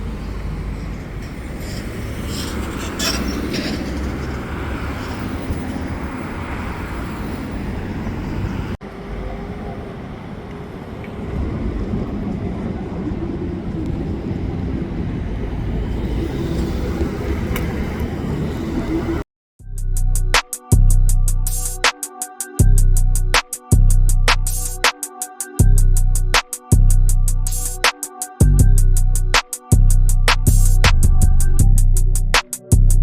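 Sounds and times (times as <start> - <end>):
heavy trucks passing: 0.0 - 19.2
traffic noise: 0.0 - 19.3.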